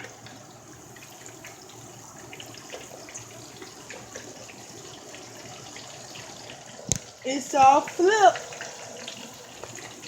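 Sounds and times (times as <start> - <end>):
fish sizzling in hot grease: 0.0 - 10.0
small crackling pops: 6.8 - 7.7.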